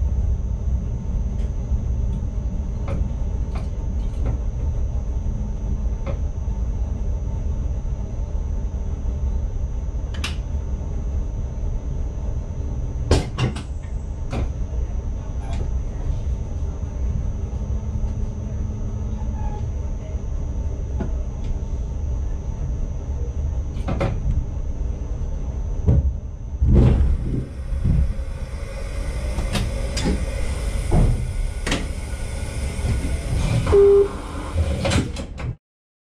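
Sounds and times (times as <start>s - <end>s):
train cab low rumble: 0.0s - 35.6s
short beep: 33.7s - 34.4s.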